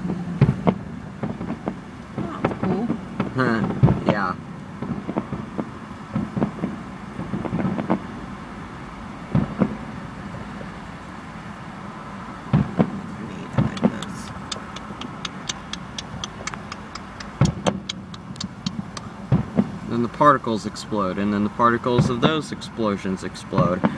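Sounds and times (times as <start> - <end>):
fireworks booming: 0.0 - 8.1, 9.3 - 9.9, 12.5 - 14.3, 17.5 - 20.0
fireworks crackling: 0.4 - 8.1, 12.5 - 20.0.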